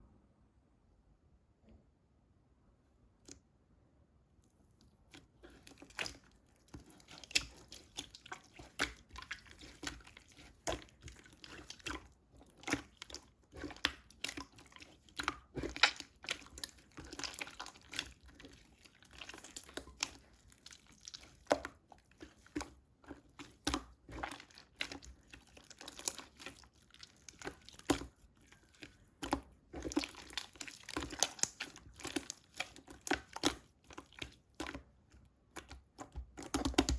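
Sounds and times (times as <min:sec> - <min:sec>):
sticky slime pops and crackles: 0:15.2 - 0:18.0, 0:35.5 - 0:36.9.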